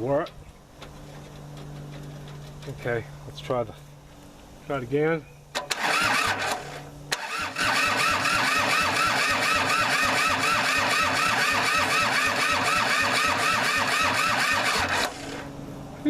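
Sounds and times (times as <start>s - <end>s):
tractor engine cranking: 5.6s - 15.5s.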